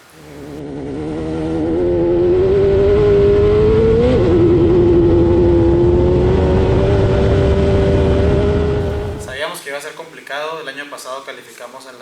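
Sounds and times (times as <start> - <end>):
race car engine running hard: 0.1 - 9.3.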